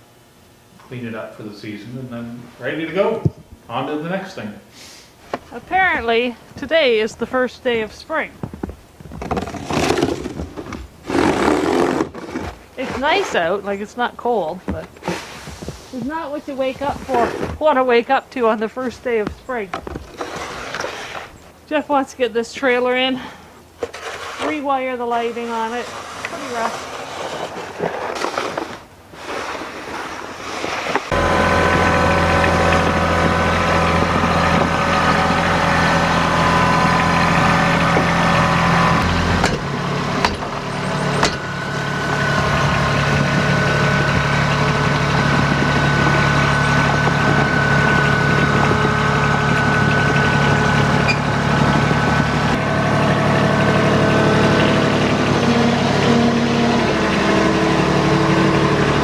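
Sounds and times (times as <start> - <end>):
vehicle engine running: 31.1 - 59.0.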